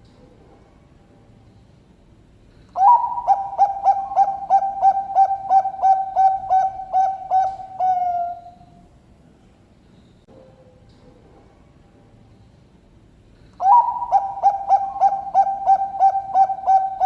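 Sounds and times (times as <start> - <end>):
dove cooing song: 2.7 - 8.8, 13.6 - 17.0.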